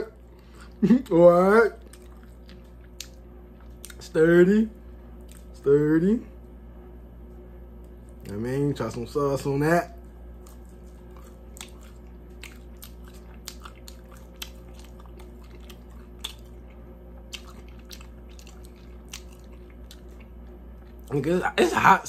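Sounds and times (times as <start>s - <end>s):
steady low hum: 0.0s - 22.0s
person chewing: 1.8s - 4.1s, 5.2s - 5.6s, 10.0s - 21.2s.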